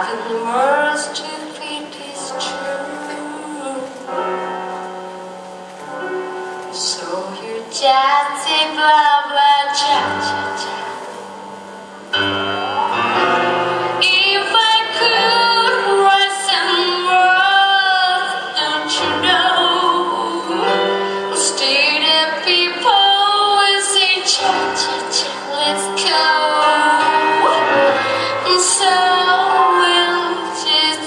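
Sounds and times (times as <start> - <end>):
women singing with vibrato: 0.0 - 4.2, 6.8 - 11.6, 12.4 - 31.0
musical accompaniment: 0.0 - 31.0.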